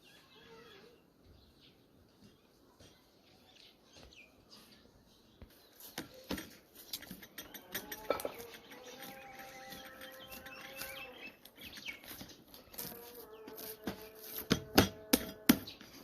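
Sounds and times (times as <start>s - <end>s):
birds chirping: 0.0s - 16.0s
sharp clicks and knocks: 5.4s - 12.4s.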